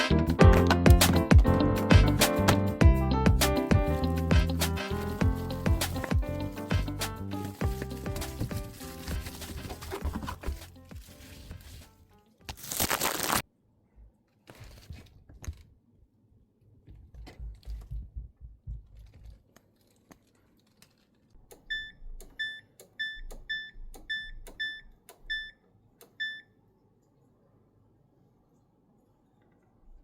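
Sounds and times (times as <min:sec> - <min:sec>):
short beeps: 0:21.7 - 0:25.6, 0:26.2 - 0:26.5.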